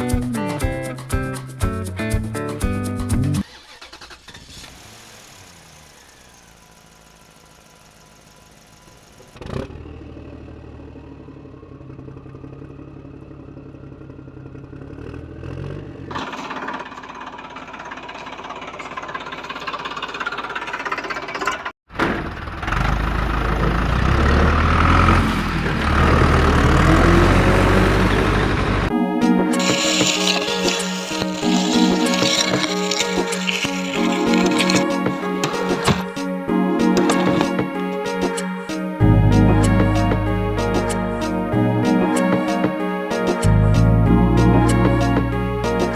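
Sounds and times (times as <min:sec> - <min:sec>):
music: 0:00.0 - 0:03.7, 0:28.9 - 0:45.9
heavy machinery engine: 0:14.1 - 0:28.9, 0:29.6 - 0:38.4.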